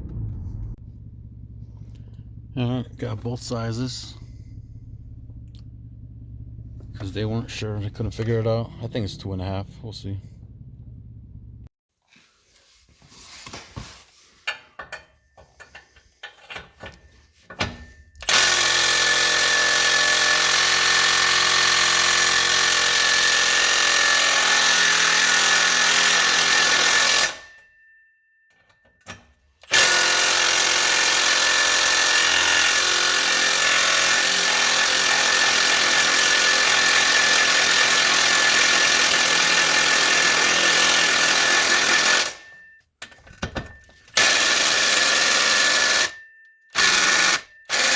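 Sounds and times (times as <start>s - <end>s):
power tool whining: 17.8s - 27.6s, 29.6s - 42.8s, 43.5s - 47.9s.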